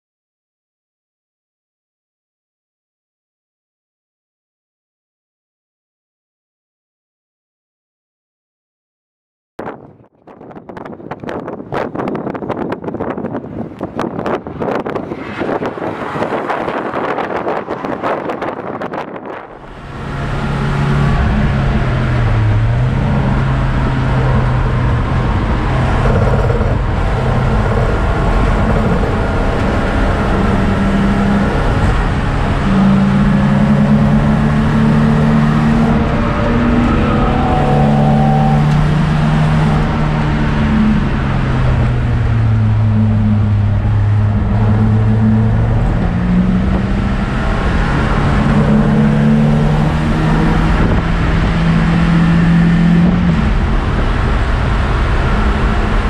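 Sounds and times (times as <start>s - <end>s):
road and wind noise: 9.6s - 56.0s
car engine revving: 13.8s - 56.0s.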